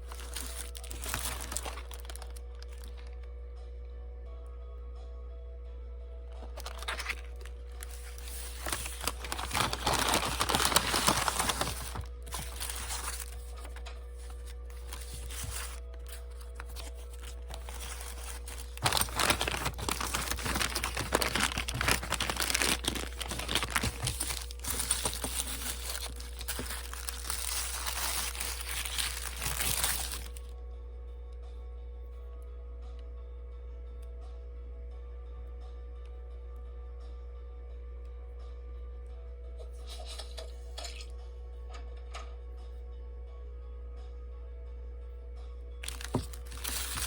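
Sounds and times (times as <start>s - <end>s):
packaging crumpling and tearing: 0.0s - 3.2s, 6.4s - 30.5s, 45.8s - 47.0s.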